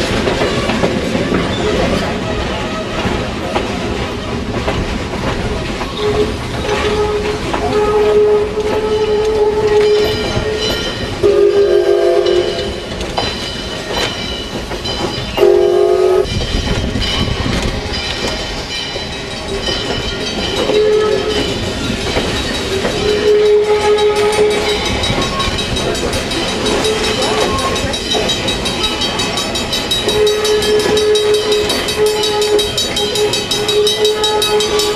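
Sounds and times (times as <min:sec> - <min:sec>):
train running on rails: 0:00.0 - 0:34.9
steam locomotive whistle: 0:06.0 - 0:12.9, 0:15.4 - 0:16.3, 0:20.7 - 0:21.5, 0:23.0 - 0:25.6, 0:30.0 - 0:34.9.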